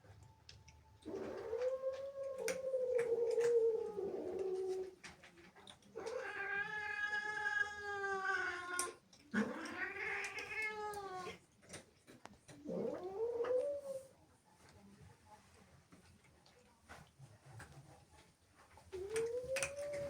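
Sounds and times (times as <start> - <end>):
cat yowling: 1.1 - 4.4.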